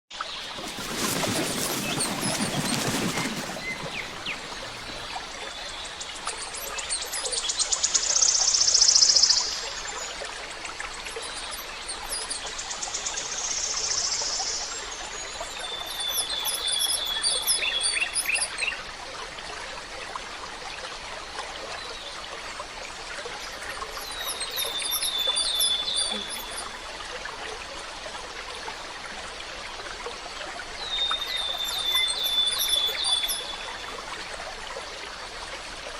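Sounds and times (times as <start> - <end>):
forest stream babbling: 0.1 - 35.9.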